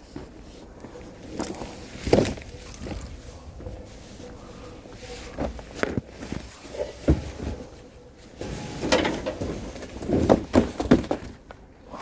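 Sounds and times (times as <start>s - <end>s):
objects knocking and thudding: 8.4s - 11.4s.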